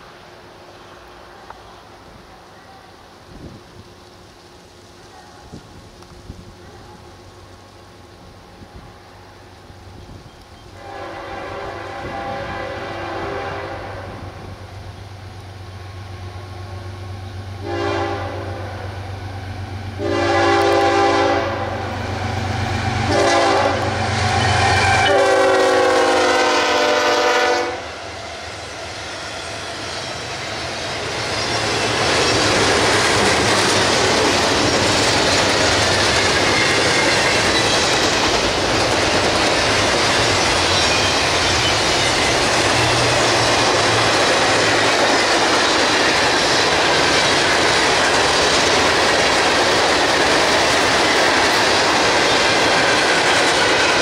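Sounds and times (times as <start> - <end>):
train rumble: 0.0 - 54.0
locomotive horn blasts: 10.8 - 14.2, 17.6 - 18.8, 20.0 - 21.9, 23.0 - 27.9
wheels clacking over rail joints: 29.2 - 54.0.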